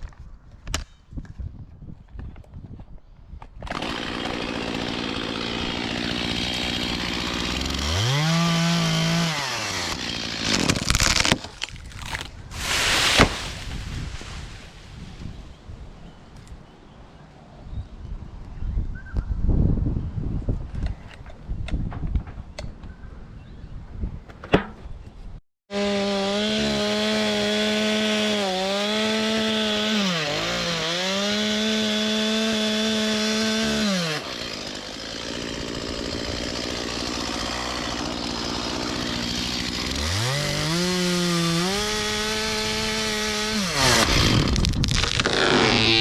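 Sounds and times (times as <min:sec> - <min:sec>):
chainsaw running: 0:03.7 - 0:12.3, 0:25.7 - 0:46.0.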